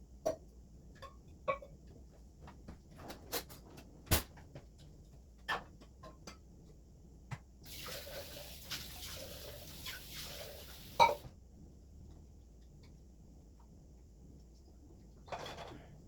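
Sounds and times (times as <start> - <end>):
kitchen tap running: 7.7 - 11.3
dishes and utensils knocking: 11.0 - 11.2.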